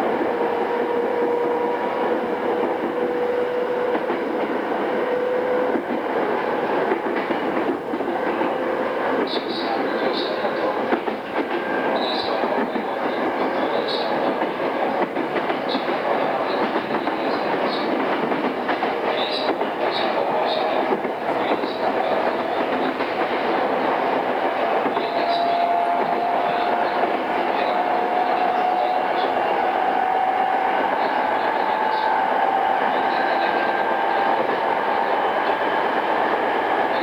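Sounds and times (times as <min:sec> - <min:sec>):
train wheel and rail noise: 0:00.0 - 0:37.0.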